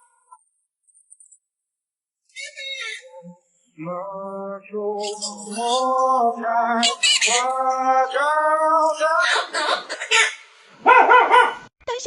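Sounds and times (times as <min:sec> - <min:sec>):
person singing long notes: 0:03.0 - 0:09.6
high chirping sound: 0:04.9 - 0:10.2.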